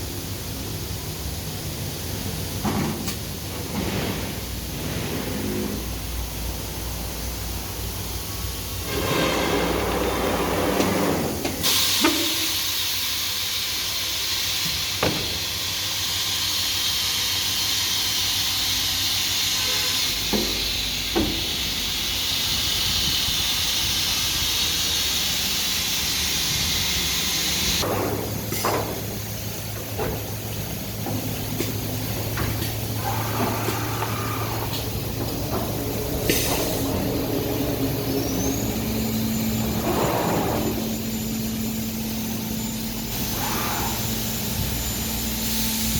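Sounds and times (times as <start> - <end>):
machine whine: 31.0 - 45.9.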